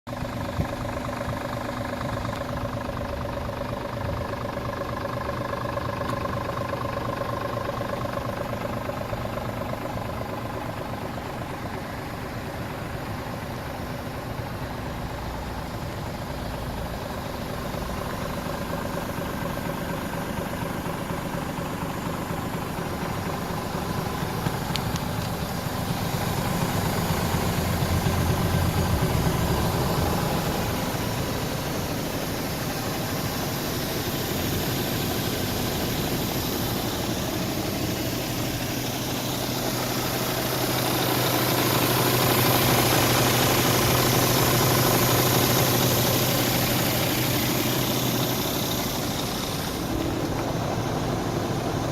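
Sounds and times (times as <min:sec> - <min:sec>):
diesel truck engine idling: 0:00.1 - 0:51.9.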